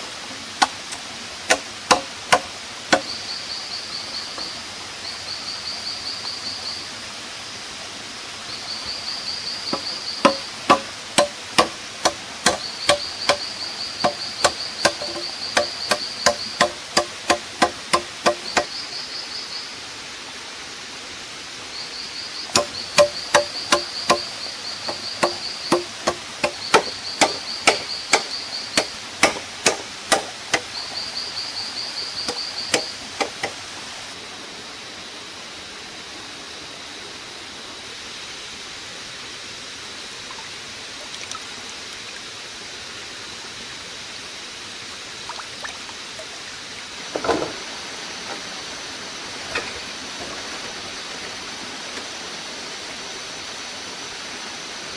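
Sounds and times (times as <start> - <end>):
hand tool striking wood: 0.6 - 3.1, 9.7 - 18.7, 22.5 - 24.3, 24.9 - 30.7, 32.3 - 33.6
insect trilling: 2.3 - 6.9, 8.5 - 19.7, 21.7 - 33.3.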